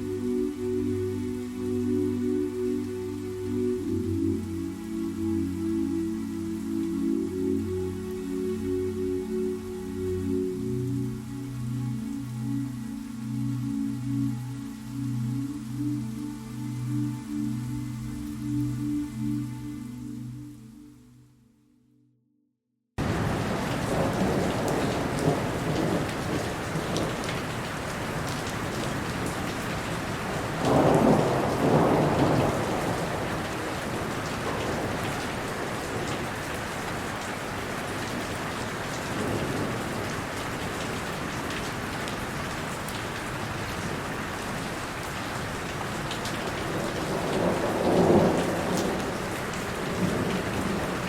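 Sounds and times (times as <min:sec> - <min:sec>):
heavy rain: 0:00.0 - 0:19.8, 0:23.0 - 0:51.0
thunder rumbles: 0:23.0 - 0:37.2, 0:45.9 - 0:51.0.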